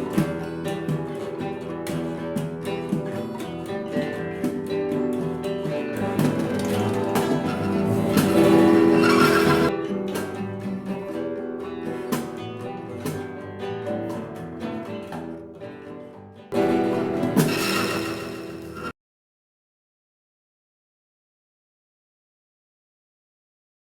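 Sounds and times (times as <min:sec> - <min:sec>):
rock band playing: 0:00.0 - 0:15.4, 0:16.5 - 0:18.9
plucked guitar notes ringing: 0:00.0 - 0:18.9.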